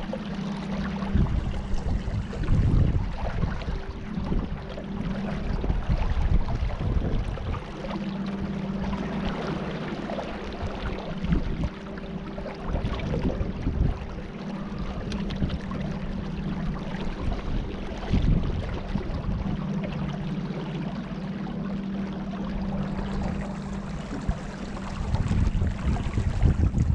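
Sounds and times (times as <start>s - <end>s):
boat motor humming: 0.0s - 26.9s
water splashing: 0.0s - 26.9s
wind noise on microphone: 0.8s - 9.5s, 10.5s - 11.8s, 12.6s - 19.8s, 22.6s - 26.9s.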